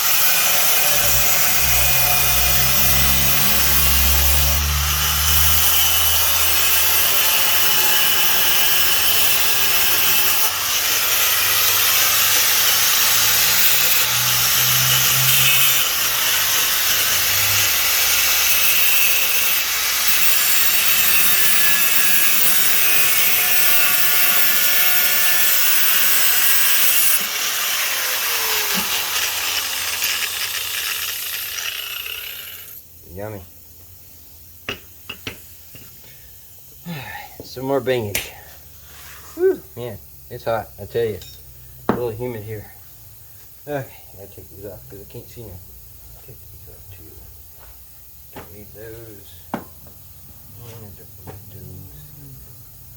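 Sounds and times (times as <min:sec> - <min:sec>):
angle grinder cutting metal: 0:00.0 - 0:32.8.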